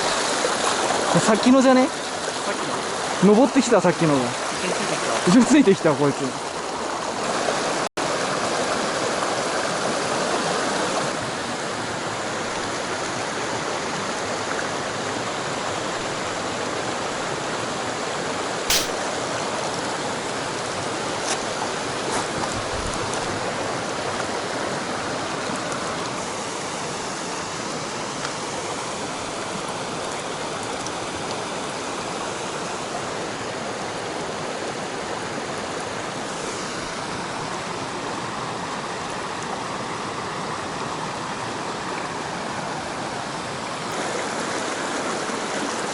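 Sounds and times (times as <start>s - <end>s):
stream water rushing: 0.0s - 45.9s
sharp click: 18.7s - 19.0s.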